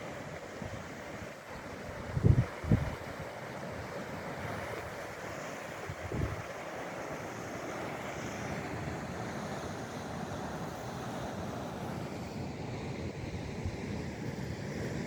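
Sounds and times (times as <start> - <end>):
wind buffeting microphone: 1.9 - 3.1, 5.8 - 6.5.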